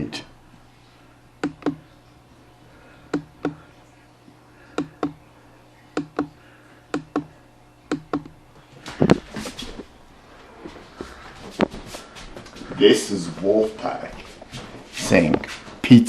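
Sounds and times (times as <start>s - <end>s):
sharp clicks in pairs: 1.4s - 1.8s, 6.0s - 6.3s, 6.9s - 7.3s, 7.9s - 8.3s
knocks and rustling: 8.8s - 9.9s, 10.6s - 12.8s.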